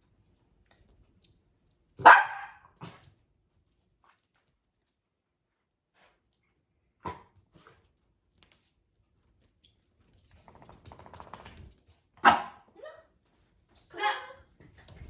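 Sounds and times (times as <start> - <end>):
dog barking: 2.0 - 3.0, 12.2 - 12.7.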